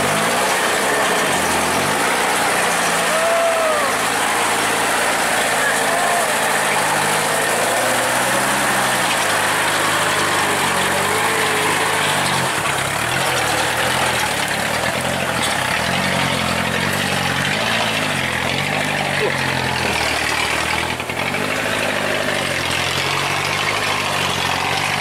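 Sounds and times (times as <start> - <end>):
truck engine running: 0.0 - 25.0.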